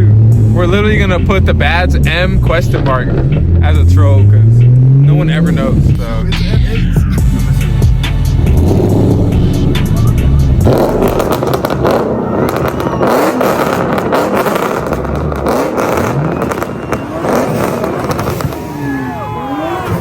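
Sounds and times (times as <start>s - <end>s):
music: 0.0s - 12.6s
car engine and exhaust rumbling: 0.0s - 20.0s.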